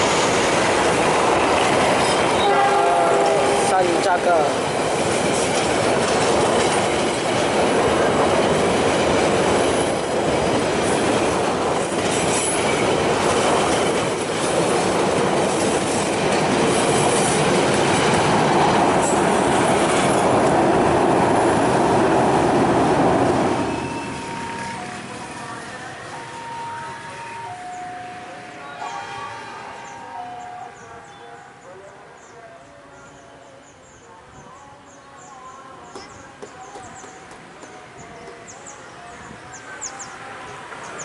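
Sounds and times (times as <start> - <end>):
train carriages rumbling: 0.0 - 31.8.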